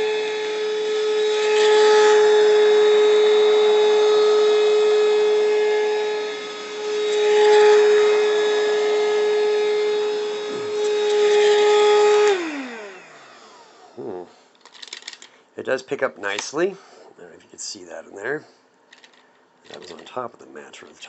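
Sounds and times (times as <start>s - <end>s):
handheld vacuum whining: 0.0s - 15.2s.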